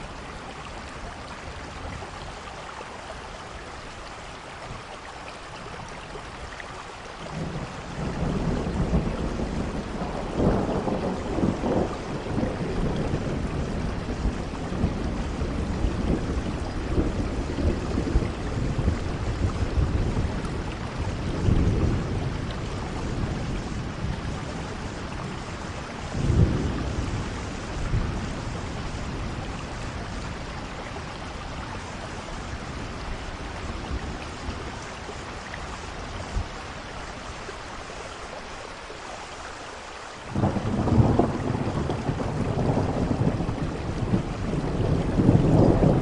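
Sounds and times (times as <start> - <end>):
steady rainfall: 0.0 - 46.0
thunder rumbling: 7.3 - 36.6, 40.3 - 46.0.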